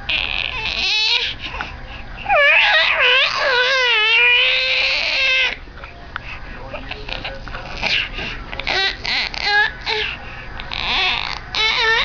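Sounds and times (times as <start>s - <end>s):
baby wailing: 0.1s - 1.4s, 2.3s - 5.6s, 8.6s - 12.0s.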